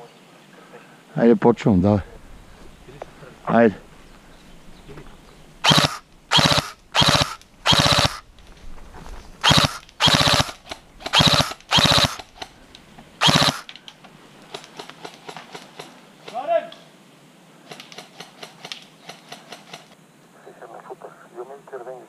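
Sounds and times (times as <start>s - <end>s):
airsoft rifle full-auto bursts: 5.6s - 8.2s, 9.4s - 12.5s, 13.2s - 13.7s.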